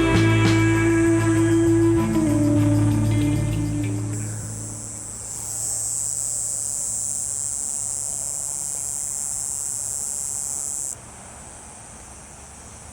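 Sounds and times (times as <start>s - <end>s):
cicada buzzing: 0.0s - 11.0s.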